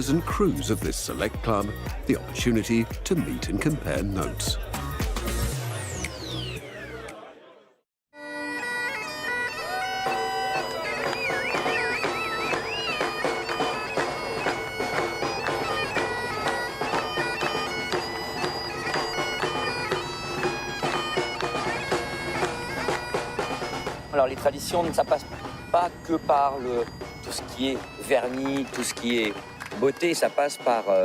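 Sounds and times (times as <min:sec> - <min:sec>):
bagpipes playing a tune: 0:08.2 - 0:31.0.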